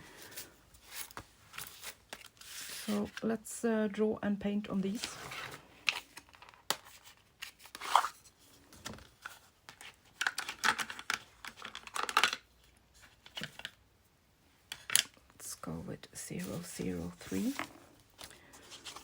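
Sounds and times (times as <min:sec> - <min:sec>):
paper rustling and scraping: 0:00.0 - 0:03.2, 0:04.8 - 0:12.1, 0:16.4 - 0:19.0.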